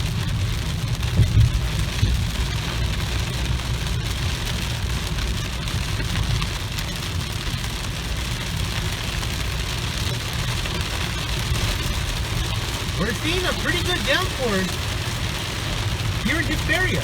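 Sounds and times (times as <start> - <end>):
car engine and tyres rumbling: 0.0 - 17.0
heavy rain on a car: 0.0 - 17.0.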